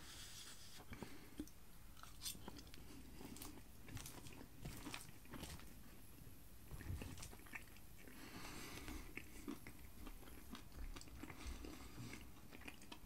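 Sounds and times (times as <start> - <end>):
close-up chewing and crunching: 0.9 - 13.0.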